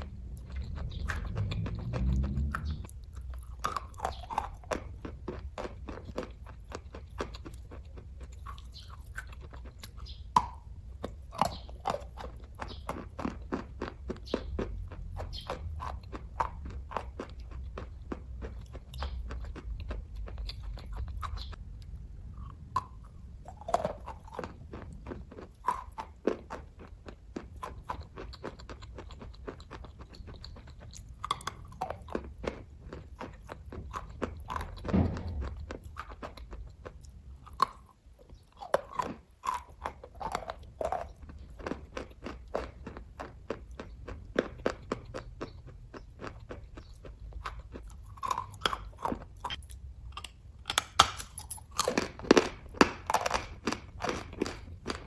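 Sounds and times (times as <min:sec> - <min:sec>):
wet mouth clicks: 0:00.0 - 0:21.6, 0:22.4 - 0:24.6
person chewing: 0:00.0 - 0:55.0.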